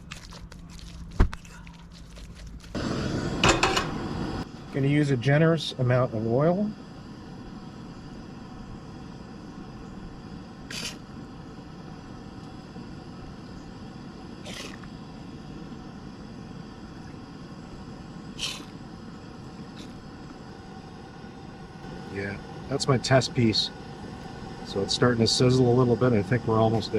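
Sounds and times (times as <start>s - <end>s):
low rushing background noise: 2.8s - 26.9s.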